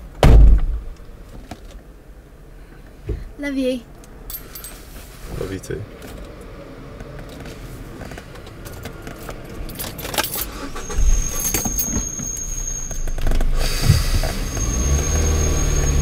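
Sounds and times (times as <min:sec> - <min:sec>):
car keys jangling: 0:04.2 - 0:04.9, 0:08.3 - 0:13.5
car engine starting and running: 0:05.4 - 0:16.0.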